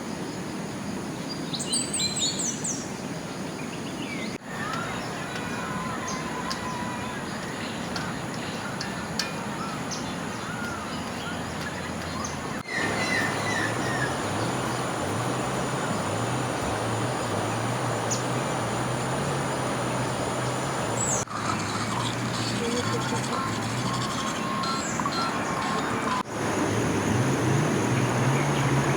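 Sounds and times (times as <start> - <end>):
river water flowing: 0.0 - 28.9
small birds chirping: 1.2 - 28.9
rain: 4.3 - 28.9.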